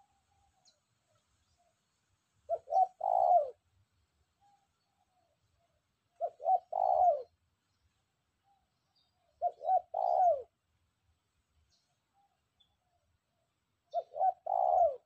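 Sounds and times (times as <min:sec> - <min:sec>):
dove cooing: 0:02.5 - 0:03.6, 0:06.1 - 0:07.4, 0:09.3 - 0:10.6, 0:13.9 - 0:15.0.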